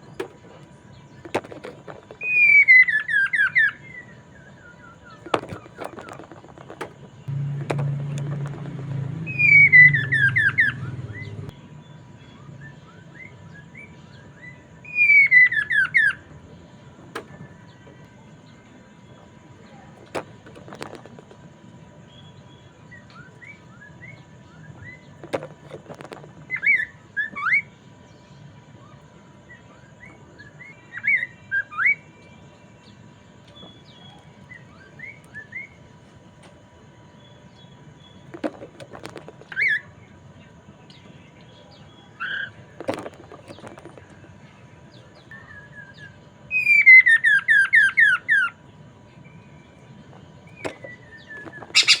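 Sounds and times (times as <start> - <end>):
bird whistled chirps: 2.2 - 5.2, 9.2 - 11.5, 12.2 - 16.3, 28.8 - 32.2, 33.6 - 35.8, 45.3 - 48.6, 50.5 - 52.0
knocks: 5.3 - 9.3
falling whistled notes: 9.1 - 11.4.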